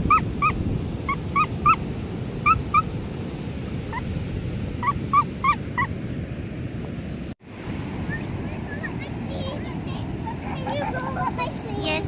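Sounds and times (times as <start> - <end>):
dog yipping and whining: 0.1 - 1.8, 2.4 - 2.9, 4.8 - 5.9.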